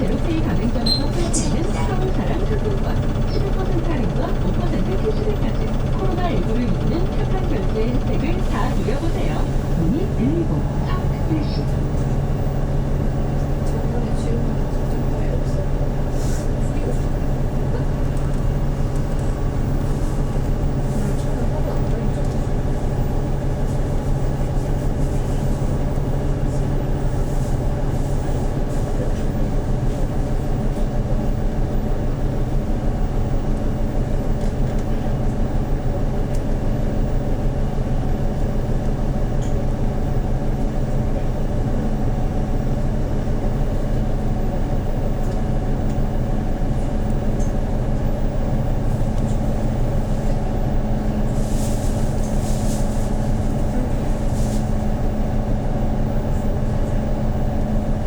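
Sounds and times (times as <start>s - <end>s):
higher steady tone: 0.0s - 11.8s
bus engine droning: 0.0s - 58.0s.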